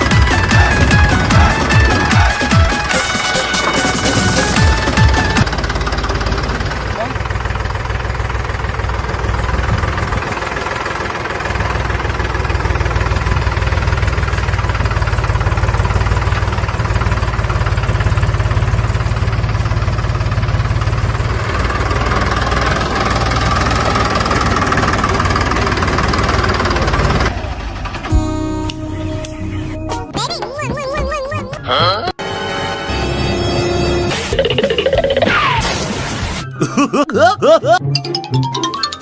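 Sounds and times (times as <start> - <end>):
tractor engine idling: 0.0 - 31.2.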